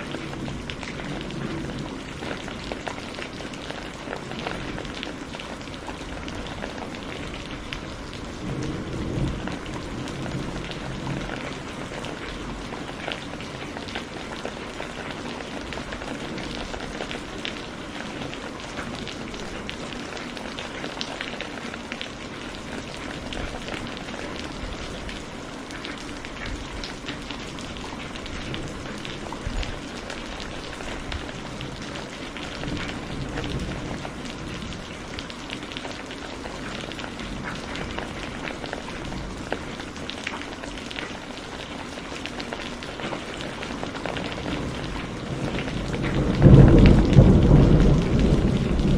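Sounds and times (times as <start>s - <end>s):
low thunder rumbling: 0.0s - 14.1s, 26.3s - 35.2s, 44.4s - 48.9s
steady rain: 0.0s - 48.9s.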